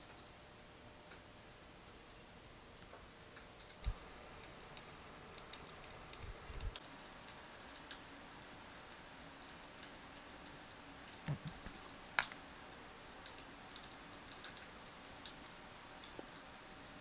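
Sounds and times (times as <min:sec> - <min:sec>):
light clicks and ticks: 0:02.8 - 0:08.1, 0:09.4 - 0:12.5, 0:13.2 - 0:16.5.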